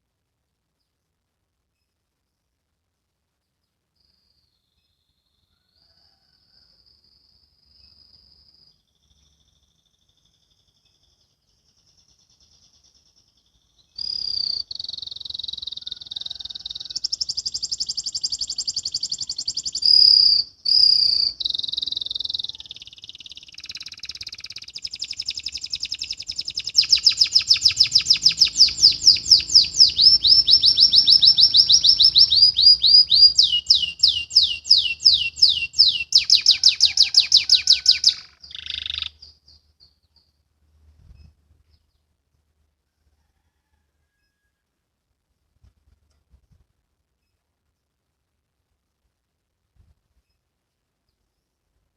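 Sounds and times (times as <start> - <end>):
canary singing: 8.8 - 40.4.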